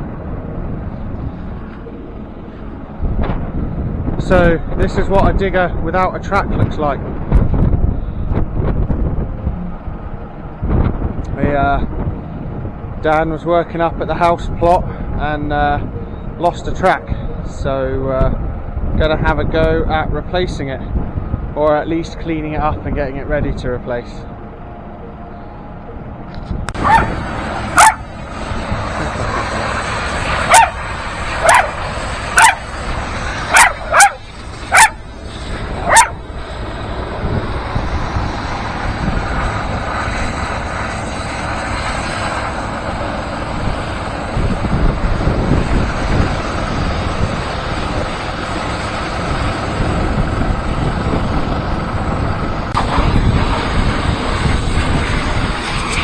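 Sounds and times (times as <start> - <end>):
dog barking: 26.8 - 28.1, 30.4 - 32.8, 33.4 - 35.0, 35.8 - 36.2.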